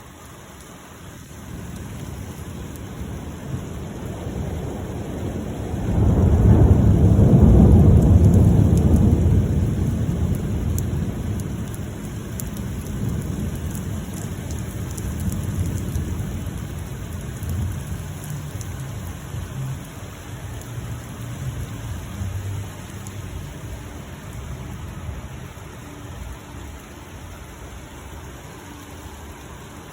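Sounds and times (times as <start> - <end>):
steady rain falling: 0.0 - 29.9
raindrops ticking: 0.2 - 29.9
thunder rumbling: 1.4 - 28.2.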